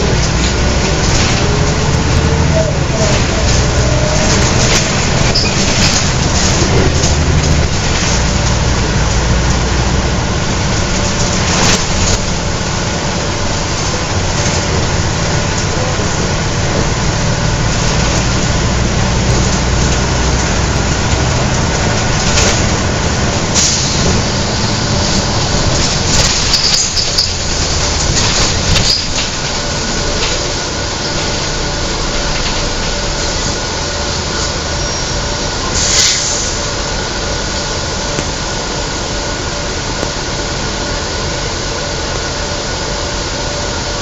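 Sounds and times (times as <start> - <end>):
bus diesel engine running: 0.0 - 44.0
knocks and rattles: 3.0 - 8.6.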